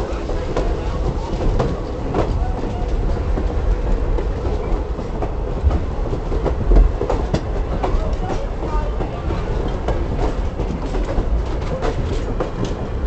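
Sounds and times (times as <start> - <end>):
railroad cars rumbling: 0.0 - 13.0
steel wheels clacking over rail joints: 0.0 - 13.0.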